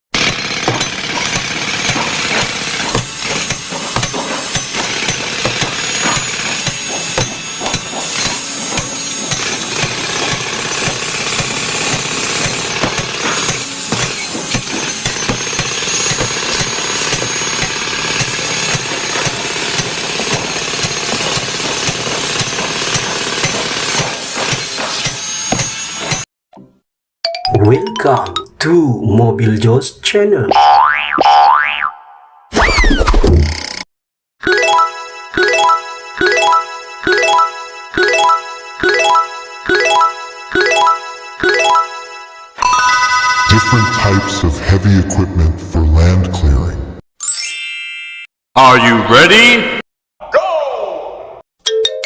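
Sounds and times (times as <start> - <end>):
heavy machinery engine: 0.2 - 24.9
hammering and banging impacts: 0.2 - 26.7.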